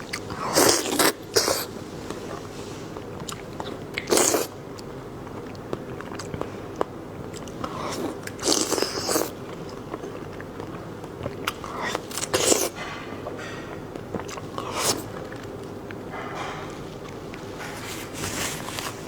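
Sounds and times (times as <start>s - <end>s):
person biting and chewing: 0.0s - 1.7s, 3.2s - 12.8s, 14.0s - 16.0s.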